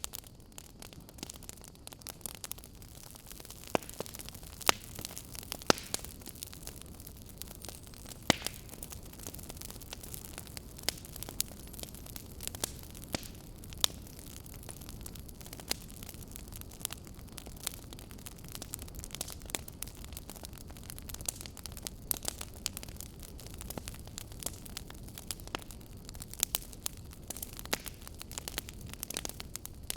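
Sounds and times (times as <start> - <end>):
fire crackling and popping: 0.0 - 29.9.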